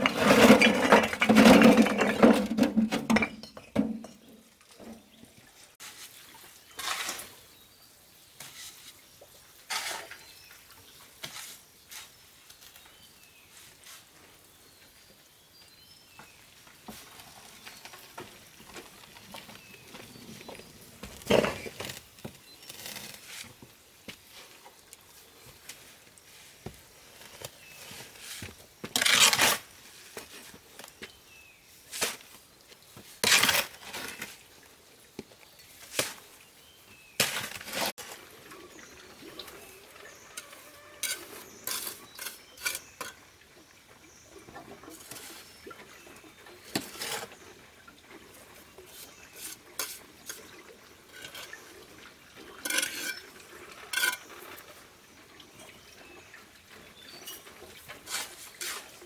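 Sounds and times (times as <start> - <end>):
hard objects clinking and scraping: 0.0 - 4.2, 40.1 - 43.2.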